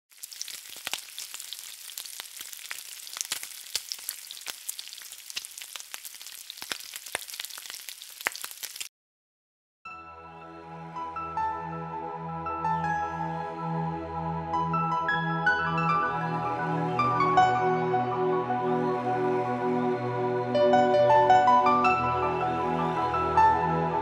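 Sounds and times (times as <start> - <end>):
food frying in hot oil: 0.1 - 8.9.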